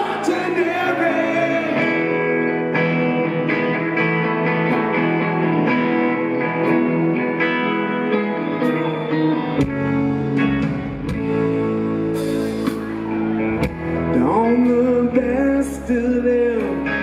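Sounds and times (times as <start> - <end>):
electric guitars ringing chords: 0.0 - 17.0
bass guitar low end: 8.8 - 17.0.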